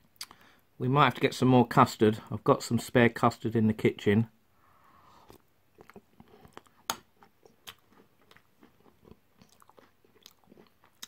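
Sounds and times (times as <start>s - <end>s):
faint chewing: 5.1s - 11.0s.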